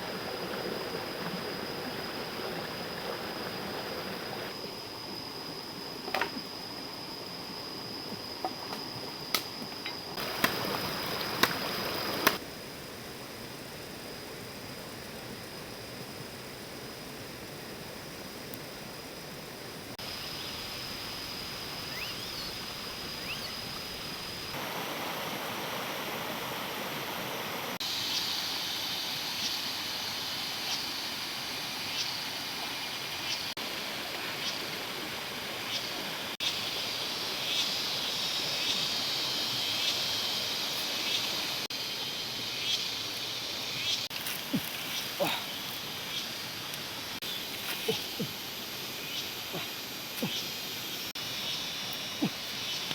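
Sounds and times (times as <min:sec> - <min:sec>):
high-pitched insect or bird calls: 0:20.0 - 0:24.6, 0:27.8 - 0:31.2, 0:31.8 - 0:33.6, 0:35.7 - 0:52.9.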